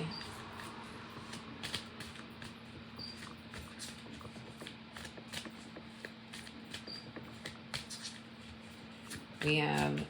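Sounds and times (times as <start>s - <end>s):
cards being shuffled: 0.6s - 10.0s.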